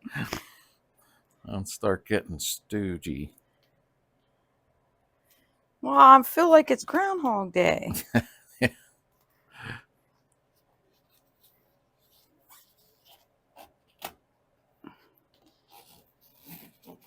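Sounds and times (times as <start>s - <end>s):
scratchy rub: 10.9s - 14.1s, 15.4s - 17.0s.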